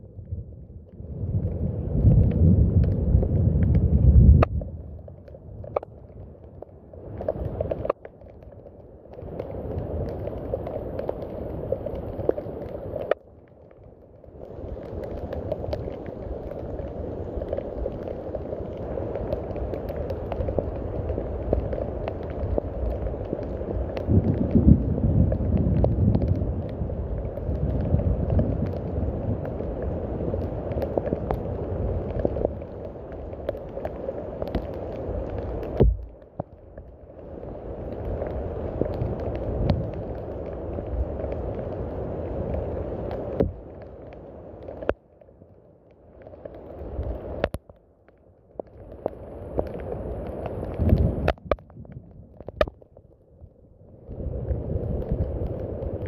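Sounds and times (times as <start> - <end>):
low dull rumble: 0.0 - 7.8, 35.0 - 43.9
steady rain: 0.0 - 56.0.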